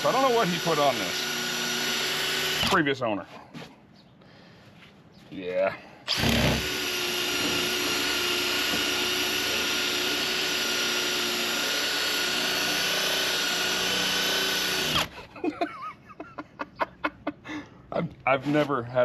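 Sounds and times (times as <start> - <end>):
drill whining: 0.0 - 2.9, 6.1 - 15.2.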